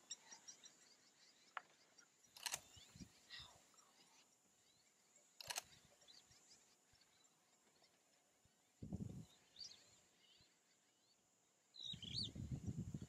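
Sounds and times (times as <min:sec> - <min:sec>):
faint bird chirps: 0:00.0 - 0:13.0
sharp clicks: 0:02.4 - 0:02.8, 0:05.4 - 0:05.8.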